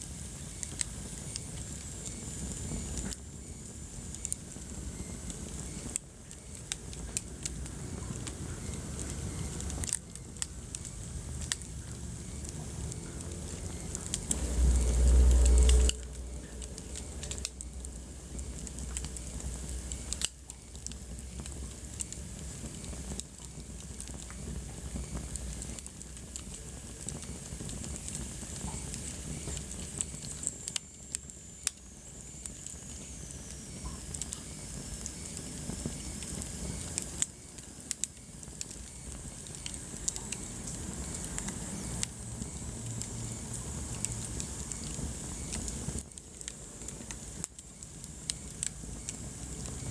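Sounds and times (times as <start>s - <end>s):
burning logs popping: 0.0s - 49.9s
flames hissing: 0.0s - 49.9s
loud low rumble: 12.1s - 18.9s.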